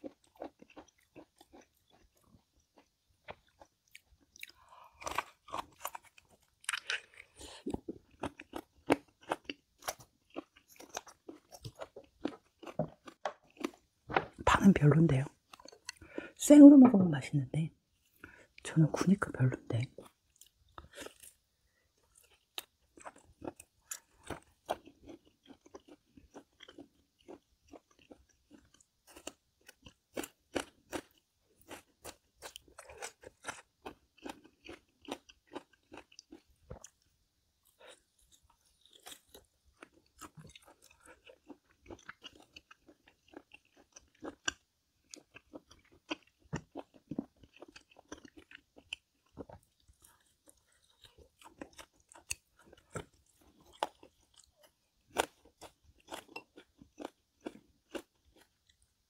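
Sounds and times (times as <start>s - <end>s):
person chewing and crunching: 0.0s - 16.4s, 18.0s - 59.0s.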